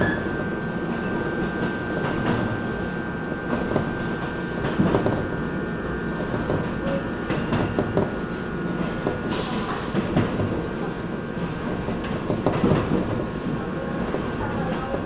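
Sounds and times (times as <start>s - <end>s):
electric train whine: 0.0s - 15.0s
train wheels clacking over joints: 6.2s - 13.3s.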